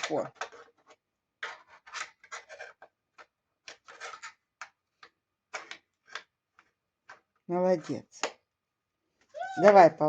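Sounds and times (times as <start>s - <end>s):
toy board clicks and clatters: 0.0s - 7.2s.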